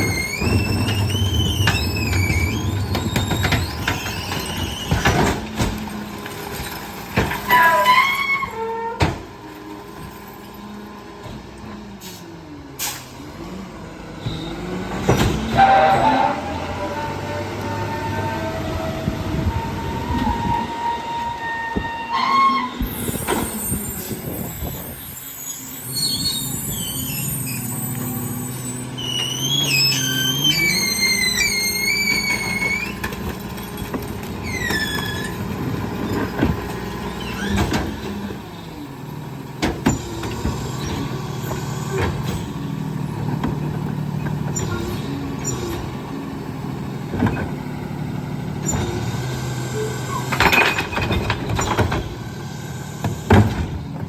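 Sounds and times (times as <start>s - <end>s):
packer mechanism squealing: 0.0s - 6.0s, 6.6s - 9.2s, 17.6s - 38.7s, 48.6s - 52.2s
garbage truck engine drone: 0.0s - 54.0s.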